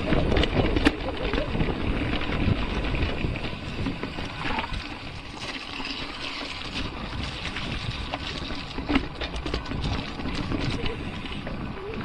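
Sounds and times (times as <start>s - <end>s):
bike rattling clicks: 0.0s - 12.0s
bike tyres on dirt: 0.0s - 12.0s.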